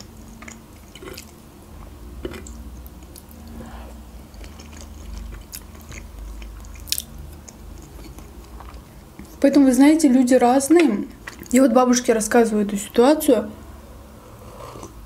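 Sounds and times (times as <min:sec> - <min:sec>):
close chewing: 0:00.0 - 0:03.6, 0:04.2 - 0:09.4.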